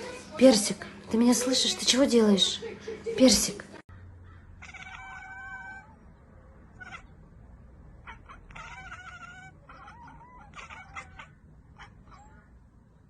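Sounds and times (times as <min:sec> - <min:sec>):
cat meowing and yowling: 0:04.6 - 0:06.0, 0:06.8 - 0:07.1, 0:08.0 - 0:12.6.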